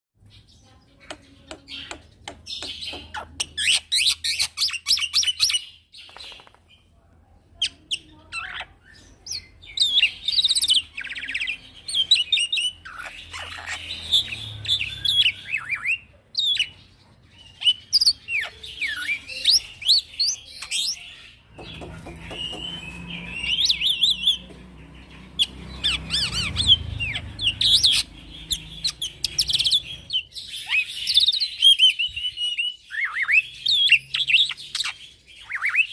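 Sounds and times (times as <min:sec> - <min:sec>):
bird singing chirps and whistles: 0:17.4 - 0:24.5, 0:25.3 - 0:35.9.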